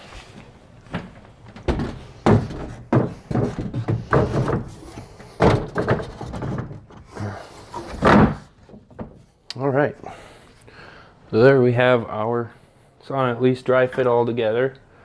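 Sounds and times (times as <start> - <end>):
wood rubbing: 0.0 - 9.2
wooden panels knocking and thudding: 0.4 - 9.3.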